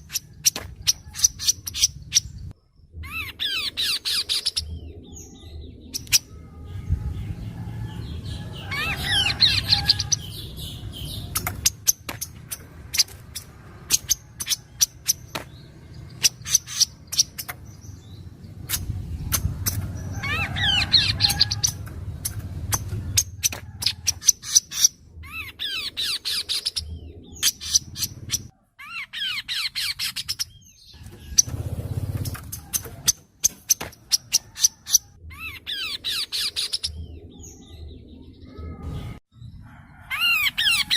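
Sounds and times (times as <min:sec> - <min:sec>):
birds chipping and trilling: 0:00.0 - 0:40.9
low rumble: 0:04.6 - 0:14.8, 0:16.9 - 0:25.3.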